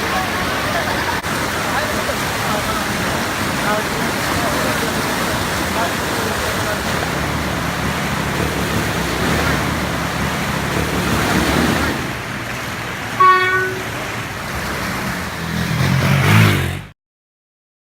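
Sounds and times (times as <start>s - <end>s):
floodwater rushing over road: 0.0s - 16.9s
motor vehicle engine: 0.0s - 16.9s
vehicle horn toot: 13.2s - 14.0s.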